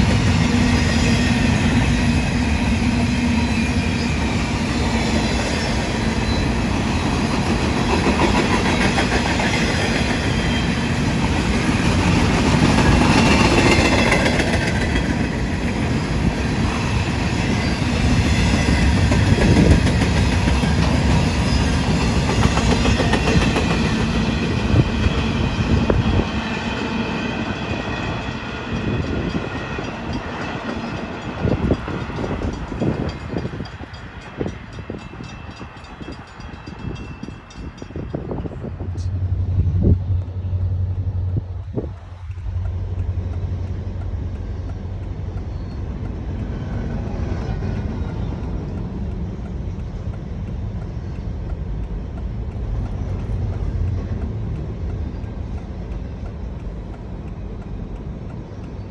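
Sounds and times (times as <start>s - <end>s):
wheels clacking over rail joints: 0.0s - 39.1s
freight train wheels rumbling: 0.0s - 58.9s.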